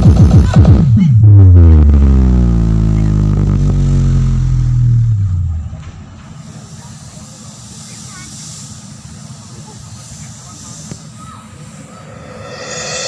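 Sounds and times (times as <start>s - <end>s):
deep bass tone falling in pitch: 0.9s - 5.8s
steady hiss: 5.1s - 13.0s.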